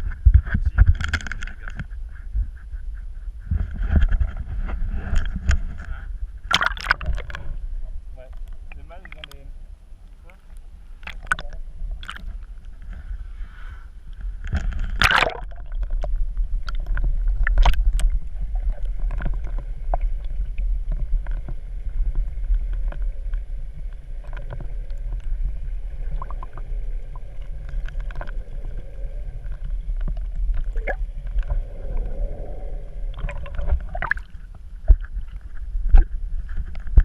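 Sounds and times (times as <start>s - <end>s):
low rumble: 0.0s - 37.0s
water splashing around boat: 6.4s - 7.6s, 14.2s - 37.0s.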